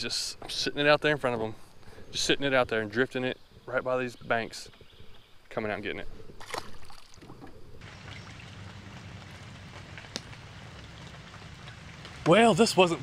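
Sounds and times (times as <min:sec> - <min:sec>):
rain on river surface: 0:07.8 - 0:13.0.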